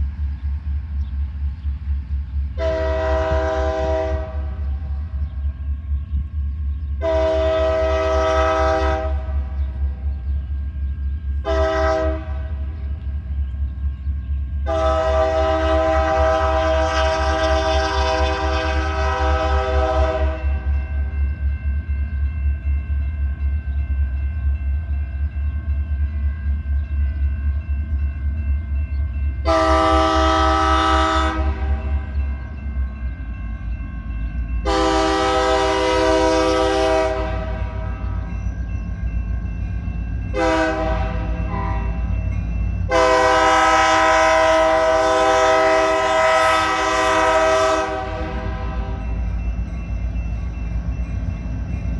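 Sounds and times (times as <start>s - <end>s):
diesel locomotive rumble: 0.0s - 51.9s
locomotive air horn: 2.6s - 4.6s, 7.0s - 9.6s, 11.4s - 12.6s, 14.6s - 20.7s, 29.4s - 32.1s, 34.6s - 38.1s, 40.3s - 42.1s, 42.9s - 49.1s.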